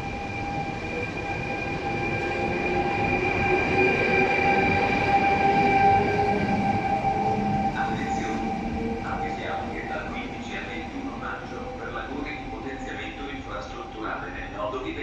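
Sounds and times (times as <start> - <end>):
train brakes squealing: 0.0 - 14.5
rumble of train wheels: 0.0 - 15.0.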